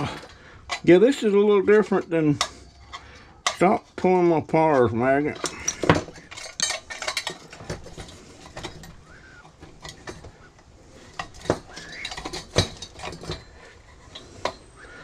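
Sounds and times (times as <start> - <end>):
pliers clicking and scraping metal: 0.0 - 14.8.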